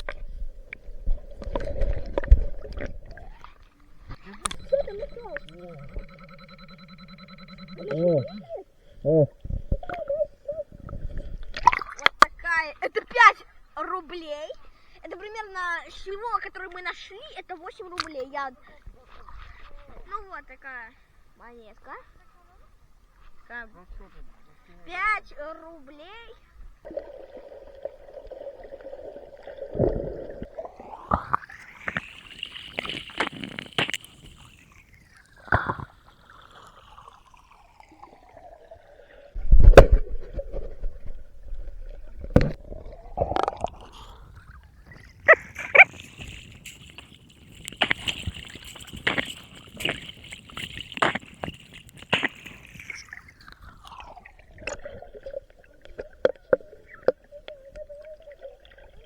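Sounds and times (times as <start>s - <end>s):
water sloshing and gurgling: 0.0s - 13.2s, 23.0s - 59.0s
metal detector tone: 4.1s - 8.6s.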